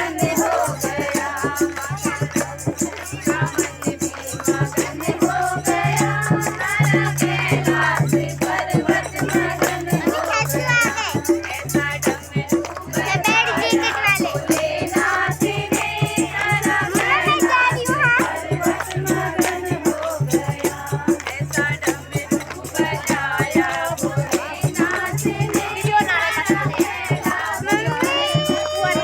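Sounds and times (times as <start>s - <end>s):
fast rattling percussion beat: 0.0s - 29.0s
person singing: 27.7s - 29.0s.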